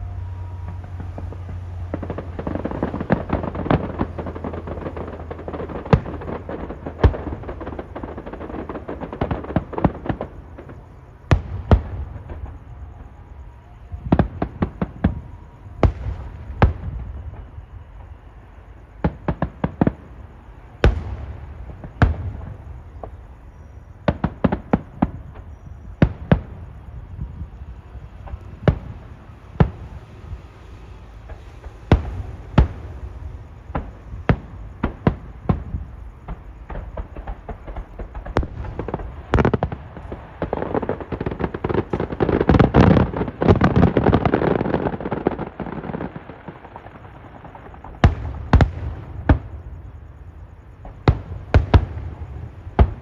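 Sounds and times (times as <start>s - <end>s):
fireworks bangs: 0.0s - 53.0s.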